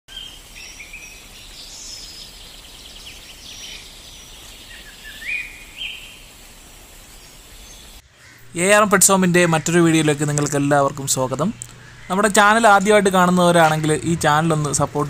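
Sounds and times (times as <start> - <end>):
birds chirping and whistling: 0.1 - 6.3
steady hiss: 0.1 - 14.3.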